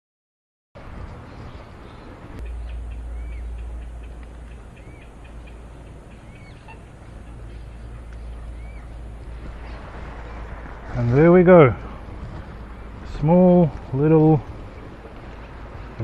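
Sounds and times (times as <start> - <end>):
steady low rumble: 0.8 - 16.0
birds chipping: 1.0 - 16.0
rising and falling bird call: 1.1 - 11.1.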